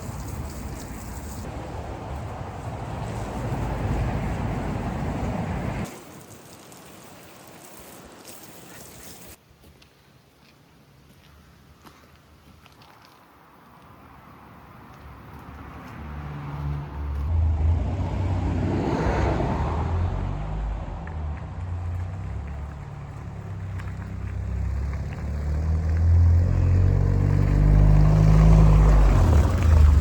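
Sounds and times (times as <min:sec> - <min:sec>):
car engine rumbling: 0:16.8 - 0:30.0.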